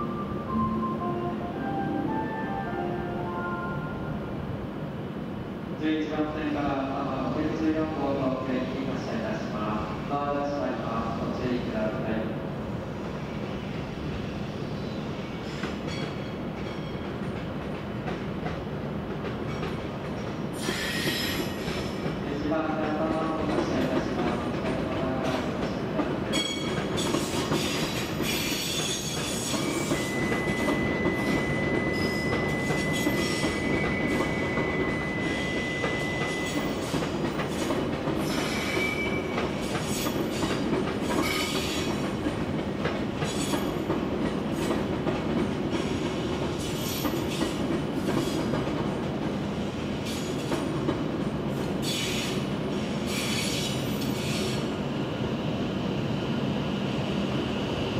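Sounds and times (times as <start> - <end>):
train rumbling on rails: 0.0 - 57.9
steady high squeal: 28.4 - 36.8.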